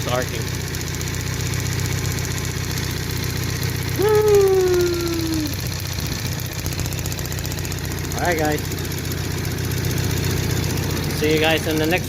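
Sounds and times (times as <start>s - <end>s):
car engine idling: 0.0s - 12.0s
held tone sinking in pitch: 4.0s - 5.6s.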